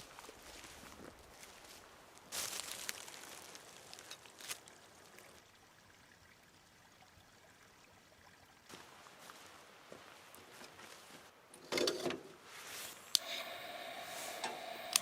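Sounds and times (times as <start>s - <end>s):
small sharp clicks: 13.1s - 15.0s.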